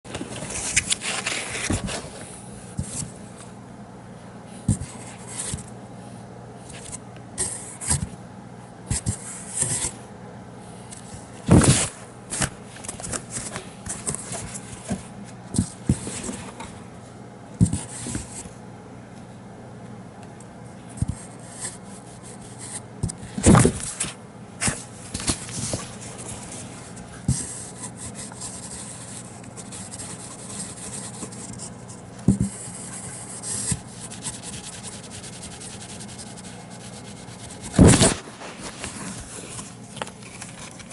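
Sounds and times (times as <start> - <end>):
kitten scratching cardboard box: 24.6 - 40.9.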